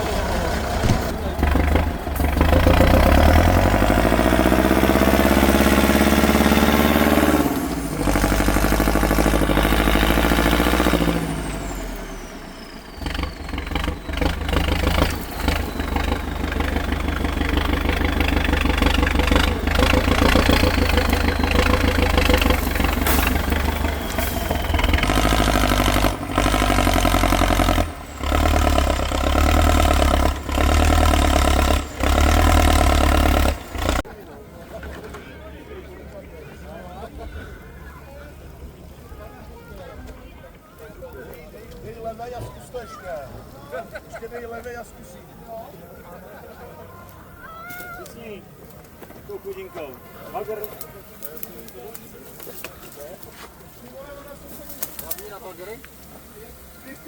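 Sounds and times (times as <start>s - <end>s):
truck engine revving hard: 0.0s - 34.1s.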